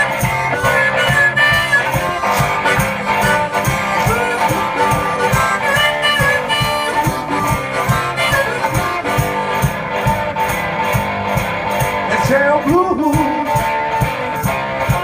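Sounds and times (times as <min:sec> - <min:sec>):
harmonica: 0:00.0 - 0:11.9
foot-worked percussion beat: 0:00.0 - 0:15.0
guitar: 0:00.0 - 0:15.0.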